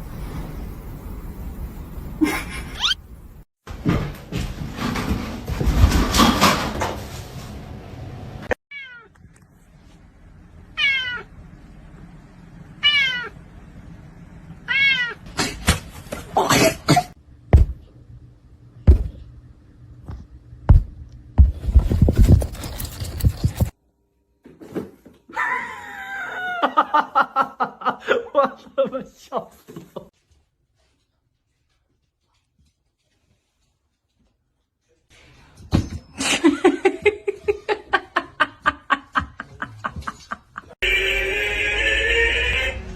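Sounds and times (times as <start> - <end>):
cat meowing: 2.8 - 3.0, 8.7 - 9.1, 10.8 - 11.3, 12.8 - 13.4, 14.7 - 15.2.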